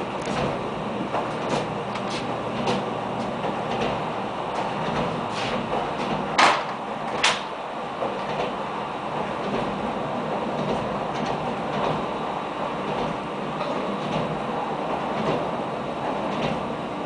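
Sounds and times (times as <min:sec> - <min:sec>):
railbus rumble inside carriage: 0:00.0 - 0:17.0
wheels knocking over rail joints: 0:04.6 - 0:08.6.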